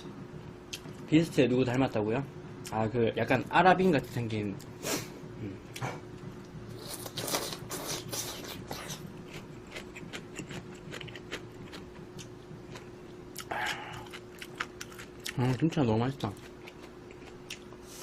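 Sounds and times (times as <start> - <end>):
faint steady hum: 0.0 - 18.0
chewing with small clicks: 8.7 - 17.8.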